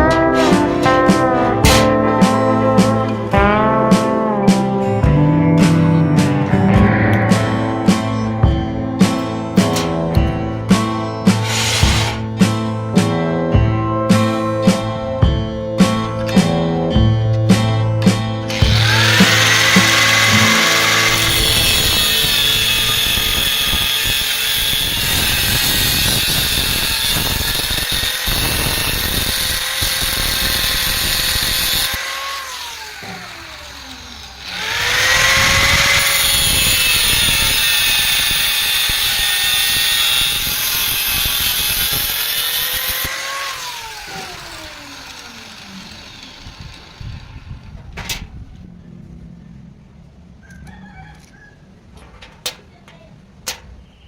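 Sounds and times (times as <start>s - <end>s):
electric power tool on metal: 11.3s - 12.6s, 18.5s - 47.8s.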